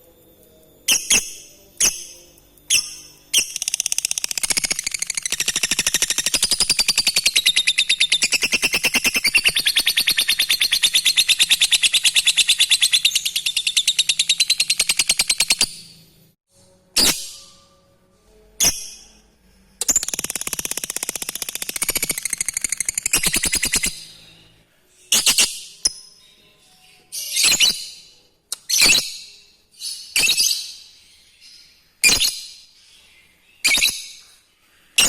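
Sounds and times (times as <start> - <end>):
lovebird chattering trill: 0.9 - 15.8, 19.8 - 24.0.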